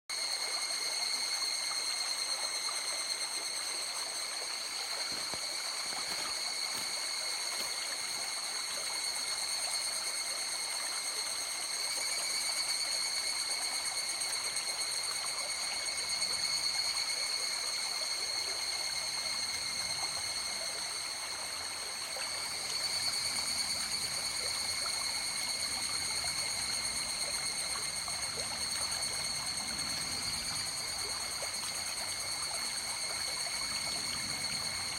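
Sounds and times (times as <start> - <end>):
high-pitched ringing tones: 0.1 - 34.9
river water flowing: 0.2 - 17.4.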